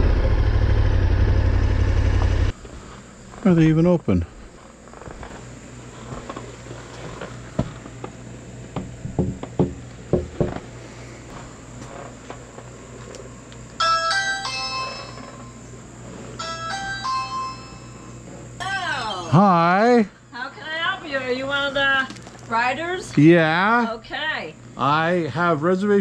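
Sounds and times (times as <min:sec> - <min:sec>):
knocks and clunks: 0:08.8 - 0:10.6
electronic door chime: 0:13.8 - 0:15.6, 0:16.4 - 0:18.2.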